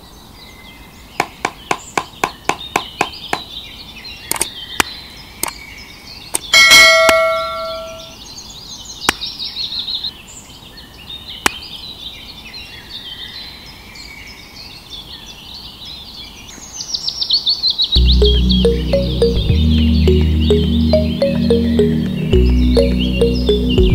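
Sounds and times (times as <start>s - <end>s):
birds chirping: 0.8s - 8.3s, 18.0s - 23.9s
bell ding: 6.6s - 8.1s
music: 18.0s - 23.9s.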